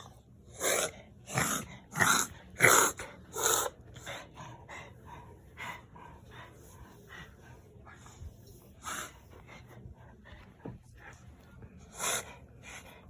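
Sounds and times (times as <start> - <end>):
dog breathing: 0.0 - 13.0
dog coughing: 0.6 - 3.7.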